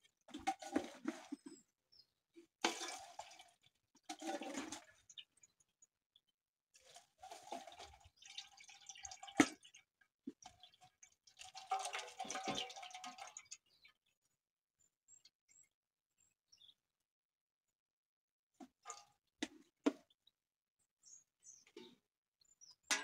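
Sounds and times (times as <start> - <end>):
water pouring through strainer: 2.6 - 5.2, 6.8 - 13.6
faint water drips: 2.6 - 14.1.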